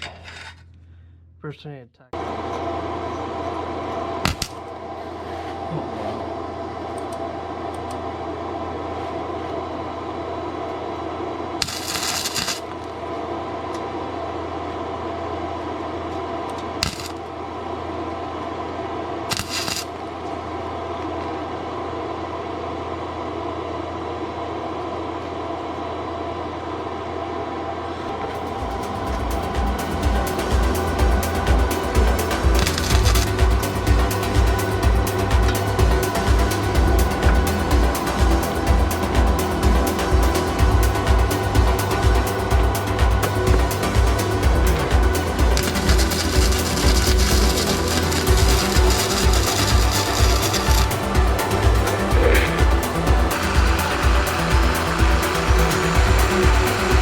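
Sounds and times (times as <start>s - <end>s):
welder humming with fan: 2.2s - 57.0s
welding arc crackling: 4.3s - 4.6s, 11.6s - 12.9s, 16.8s - 17.2s, 19.3s - 20.0s, 28.3s - 57.0s.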